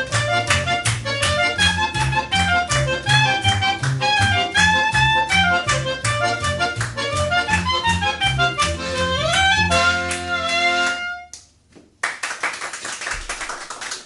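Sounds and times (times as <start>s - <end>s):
guitar: 0.0s - 11.2s
accordion melody: 0.0s - 11.3s
bass line: 0.0s - 11.3s.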